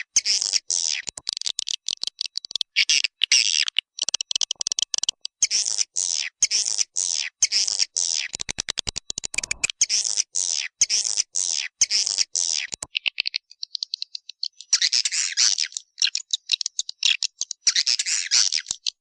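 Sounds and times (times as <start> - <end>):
rapid clicks: 8.3 - 9.8
high twittering bird chirps: 13.0 - 19.0.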